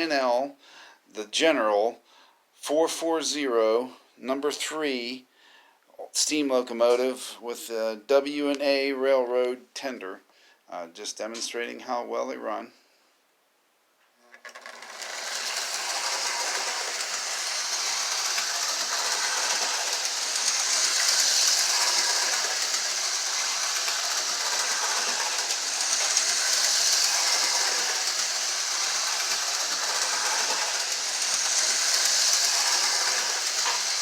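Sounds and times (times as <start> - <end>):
model train motor whirring: 14.4 - 34.0
wheels rattling on rails: 14.6 - 34.0.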